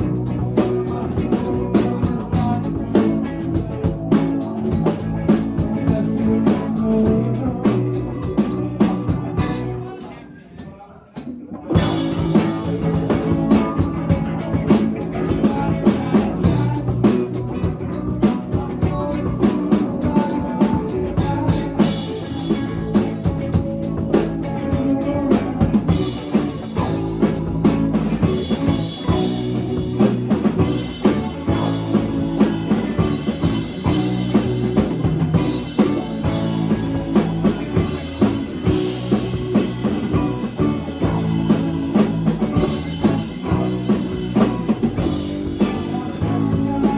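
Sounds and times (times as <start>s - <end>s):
drum kit steady beat: 0.0s - 10.1s, 11.2s - 46.9s
live band playing: 0.0s - 46.9s.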